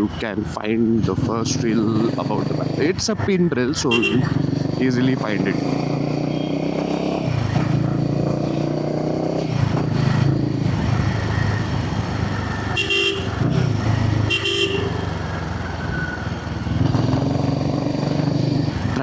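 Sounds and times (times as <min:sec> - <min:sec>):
motorcycle engine revving: 0:01.5 - 0:03.0, 0:03.9 - 0:19.0
vehicle horn honking: 0:03.9 - 0:04.3, 0:12.7 - 0:13.5, 0:14.2 - 0:15.2.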